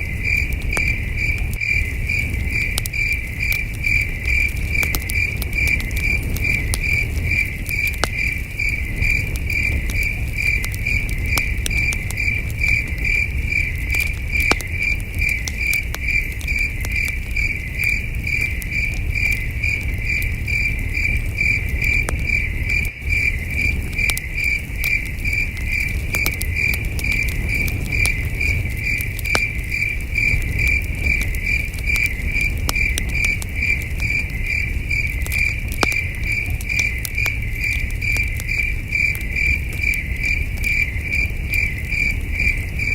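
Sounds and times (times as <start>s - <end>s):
campfire crackling and popping: 0.0s - 42.9s
crickets chirping: 0.0s - 42.9s.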